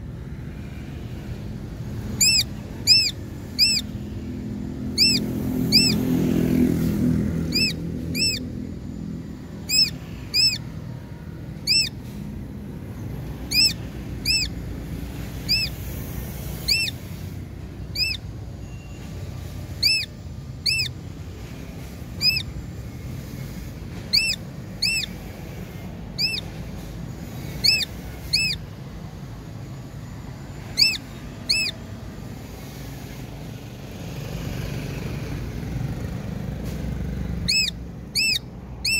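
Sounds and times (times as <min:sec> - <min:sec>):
low engine hum: 0:00.0 - 0:38.9
bird calling in high notes: 0:02.2 - 0:04.0, 0:04.8 - 0:06.3, 0:07.4 - 0:08.6, 0:09.6 - 0:10.8, 0:11.6 - 0:12.0, 0:13.4 - 0:14.6, 0:15.4 - 0:15.8, 0:16.6 - 0:17.0, 0:17.8 - 0:19.2, 0:19.8 - 0:21.0, 0:22.2 - 0:22.6, 0:24.0 - 0:26.6, 0:27.4 - 0:28.7, 0:30.6 - 0:31.8, 0:37.4 - 0:38.9.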